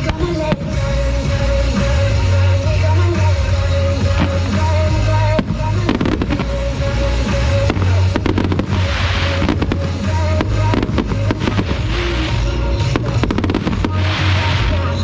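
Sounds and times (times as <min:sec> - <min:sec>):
fireworks bangs and crackles: 0:00.0 - 0:15.0
loud music with heavy bass: 0:00.0 - 0:15.0.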